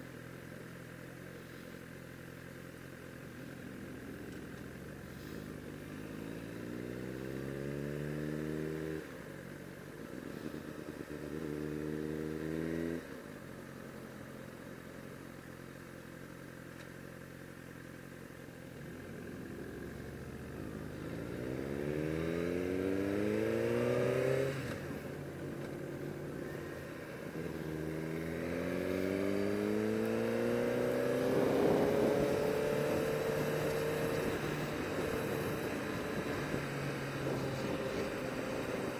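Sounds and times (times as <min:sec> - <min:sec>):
motorbike engine accelerating: 0:19.8 - 0:38.9.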